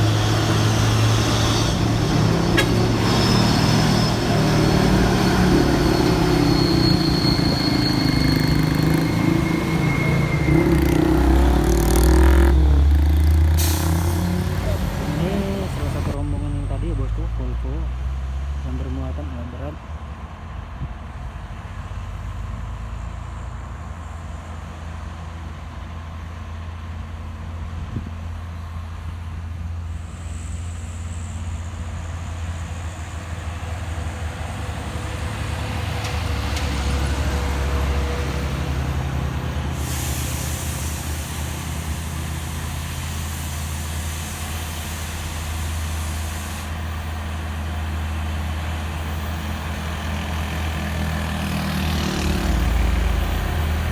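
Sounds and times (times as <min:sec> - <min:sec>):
loud high hiss: 0:00.0 - 0:16.2, 0:39.7 - 0:47.2
diesel truck engine rumbling: 0:00.0 - 0:53.9.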